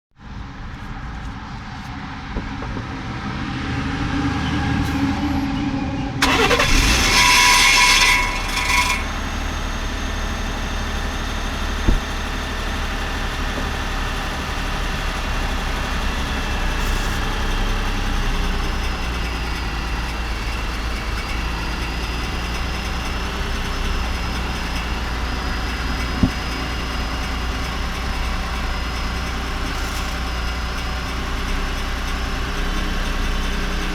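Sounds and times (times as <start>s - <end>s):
metallic tinny clatter: 6.2s - 9.1s
engine starting and idling: 6.2s - 33.9s
sharp knocks: 11.9s - 12.2s.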